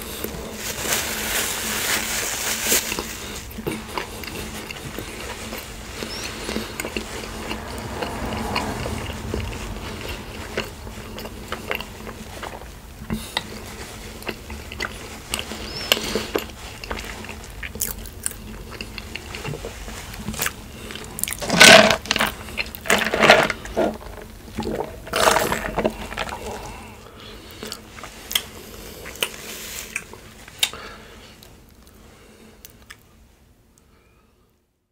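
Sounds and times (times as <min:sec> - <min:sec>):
chewing and biting: 0:02.9 - 0:26.9.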